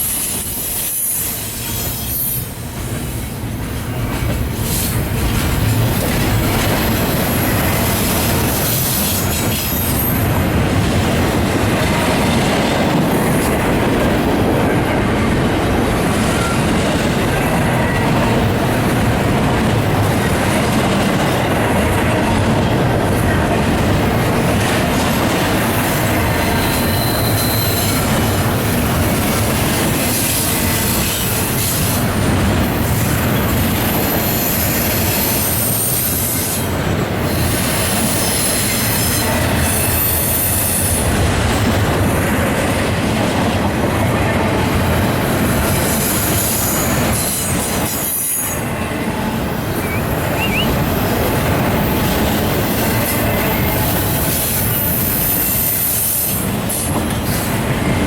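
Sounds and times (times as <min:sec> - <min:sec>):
high wheel squeal: 0:00.0 - 0:02.6, 0:26.6 - 0:28.0, 0:49.8 - 0:51.2
freight train rumbling past: 0:00.0 - 0:58.0.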